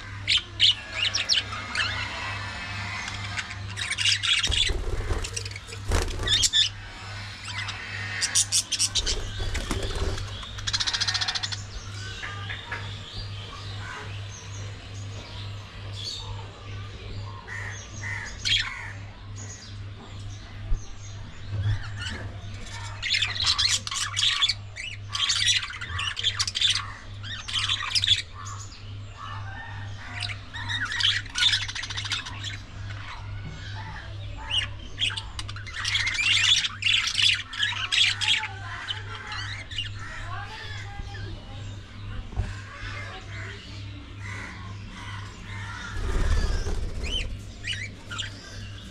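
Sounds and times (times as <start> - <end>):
budgerigars chattering: 0.0 - 14.5, 21.8 - 48.9
low hum: 2.8 - 7.8.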